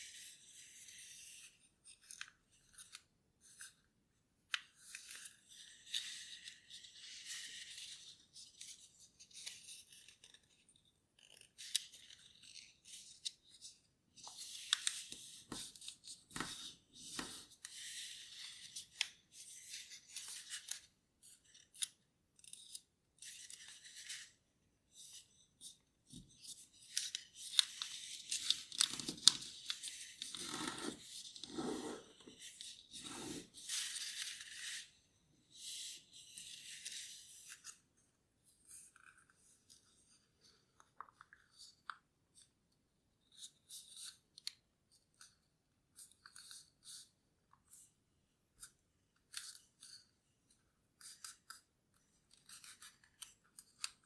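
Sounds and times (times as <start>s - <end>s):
paper folding and rustling: 4.8s - 37.8s.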